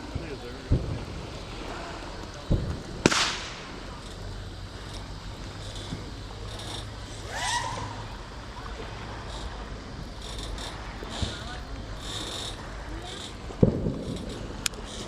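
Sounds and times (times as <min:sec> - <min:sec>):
motorboat engine humming: 0:00.0 - 0:15.0
water noise: 0:00.0 - 0:15.0
wind: 0:00.0 - 0:15.0
rising whistle-like tone: 0:07.2 - 0:08.1.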